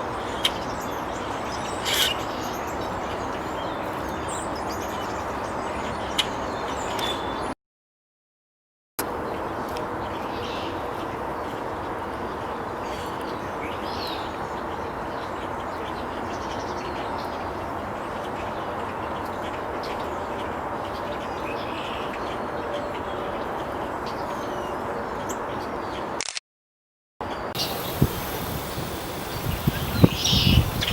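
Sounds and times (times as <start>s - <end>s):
outdoor background rush: 9.0s - 26.2s, 27.2s - 30.9s
faint bird chirps: 27.6s - 30.9s.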